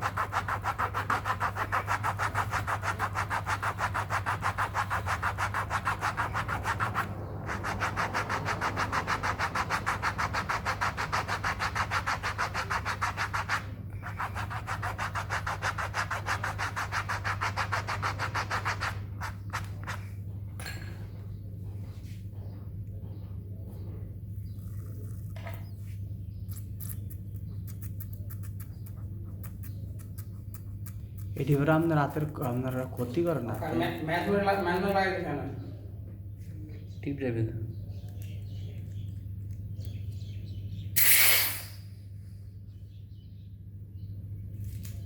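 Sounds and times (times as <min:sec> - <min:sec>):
fast rhythmic scraping: 0:00.0 - 0:20.1, 0:26.5 - 0:35.3
steady low hum: 0:00.0 - 0:45.0.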